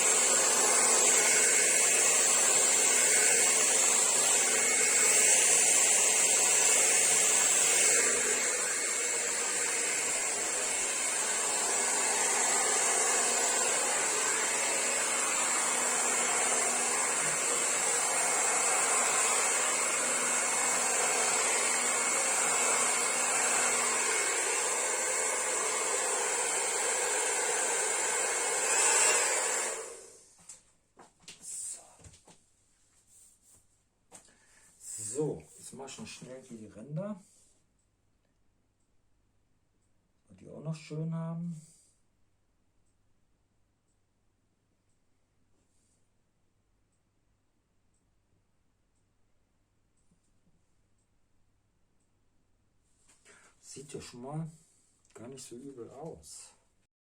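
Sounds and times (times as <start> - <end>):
hair dryer running: 0.0 - 30.2.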